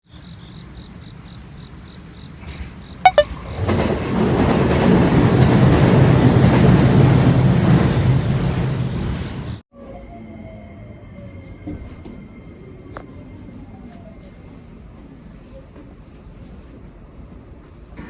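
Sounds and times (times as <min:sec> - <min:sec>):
faint high beeping: 0:03.1 - 0:03.3
train rushing rumble: 0:03.4 - 0:09.6.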